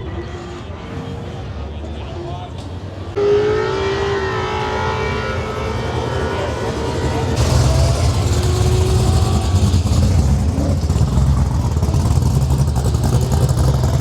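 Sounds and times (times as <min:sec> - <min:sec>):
car engine low rumble: 0:04.2 - 0:14.0.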